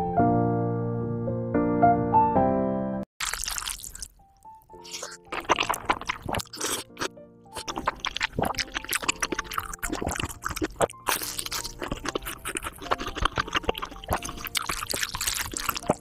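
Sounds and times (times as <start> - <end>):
wet chewing of noodles: 3.2 - 16.0
soft background music: 4.2 - 16.0.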